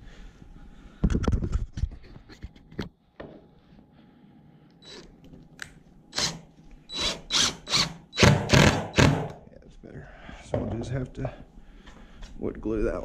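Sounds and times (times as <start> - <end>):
power drill driving screw: 4.8 - 5.1, 6.1 - 9.4.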